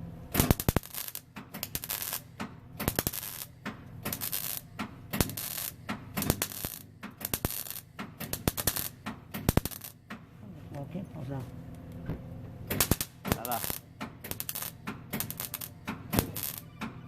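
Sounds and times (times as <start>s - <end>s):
welder arc crackling: 0.3s - 10.0s, 12.7s - 16.7s.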